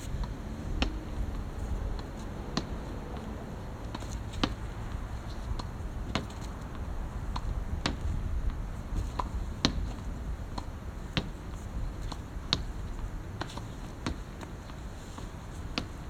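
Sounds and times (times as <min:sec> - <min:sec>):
steady low rumble: 0:00.0 - 0:13.4.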